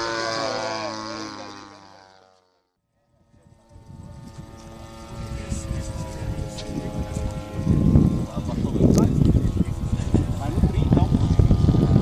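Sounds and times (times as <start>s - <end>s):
model airplane engine running: 0.0s - 12.0s.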